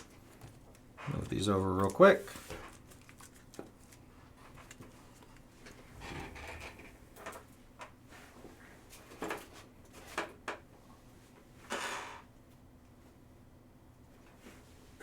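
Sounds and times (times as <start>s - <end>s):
cards rustling: 0.1s - 5.4s.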